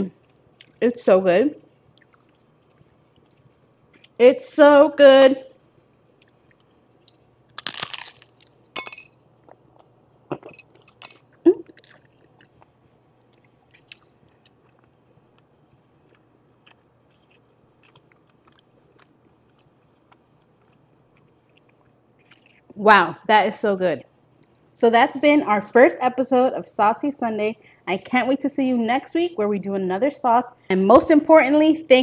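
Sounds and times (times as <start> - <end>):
chewing: 1.7 - 4.2, 6.0 - 8.6, 9.4 - 22.8
crunching chip bites: 7.1 - 8.8.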